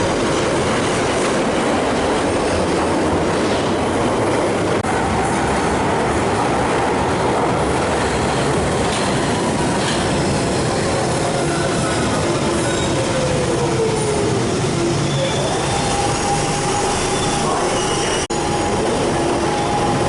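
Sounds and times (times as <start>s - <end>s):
underground train departing: 0.0s - 20.0s.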